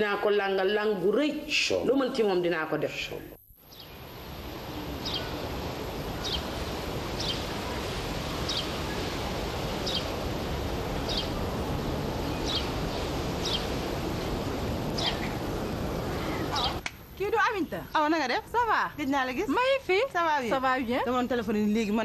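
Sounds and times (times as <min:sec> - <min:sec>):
outdoor background noise: 0:00.0 - 0:22.0
bird chirping: 0:03.6 - 0:04.1, 0:04.7 - 0:16.9.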